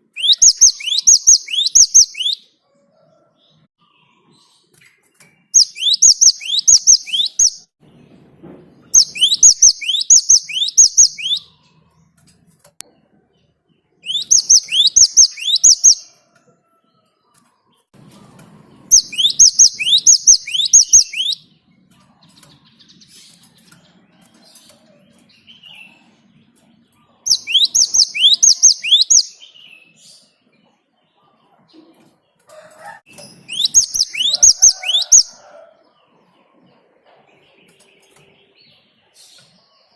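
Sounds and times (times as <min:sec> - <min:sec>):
great tit singing sharp high notes: 0:00.0 - 0:02.4, 0:05.6 - 0:07.7, 0:09.0 - 0:11.6, 0:14.1 - 0:16.1, 0:18.9 - 0:21.4, 0:27.3 - 0:29.6, 0:33.4 - 0:35.4.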